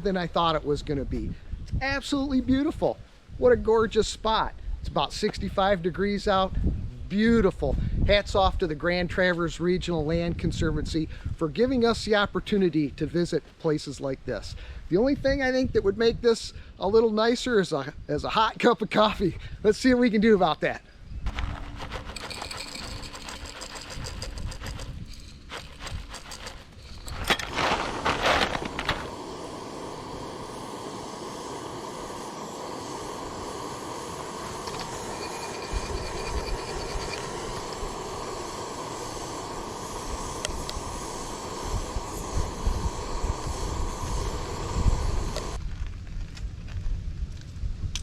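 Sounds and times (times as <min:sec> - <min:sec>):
camp gear clicking and rattling: 0:21.3 - 0:29.1
camp stove burner hissing: 0:21.4 - 0:45.6.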